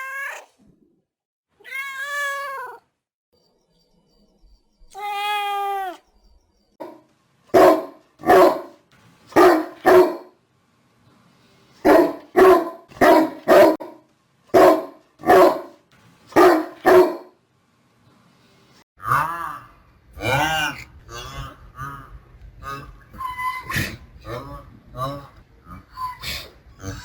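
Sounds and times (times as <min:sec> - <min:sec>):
dog barking: 0:06.8 - 0:10.4, 0:11.8 - 0:17.4.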